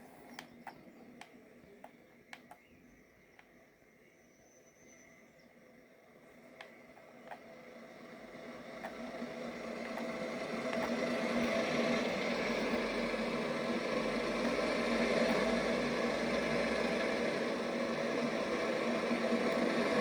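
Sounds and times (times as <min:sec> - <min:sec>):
train passing: 0:07.4 - 0:20.0.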